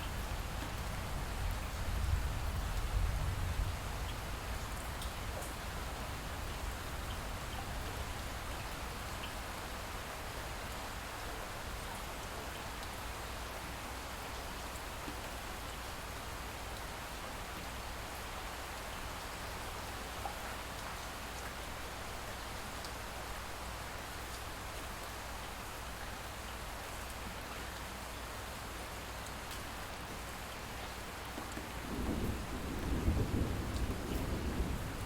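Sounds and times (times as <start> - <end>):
light rain falling: 0.0 - 35.0
faint raindrop ticks: 4.0 - 5.6, 7.0 - 9.4, 10.6 - 13.1, 20.1 - 21.6, 29.2 - 35.0.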